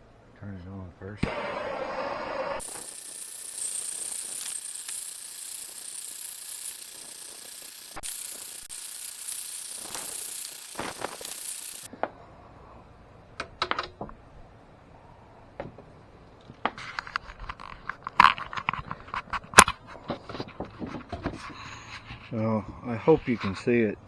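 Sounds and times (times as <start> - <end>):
gas torch hissing: 1.2 - 11.9.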